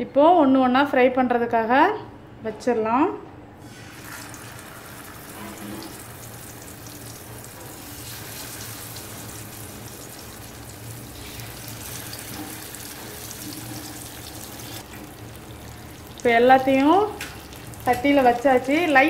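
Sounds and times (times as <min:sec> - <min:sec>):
eggs sizzling in hot oil: 0:03.6 - 0:19.0.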